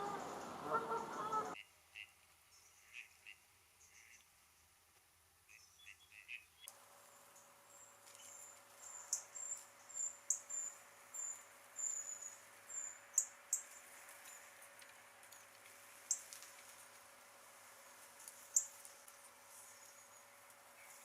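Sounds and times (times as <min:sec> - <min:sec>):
soft bird chirps: 0:00.0 - 0:04.7, 0:05.5 - 0:06.7, 0:07.7 - 0:14.6, 0:18.3 - 0:21.0.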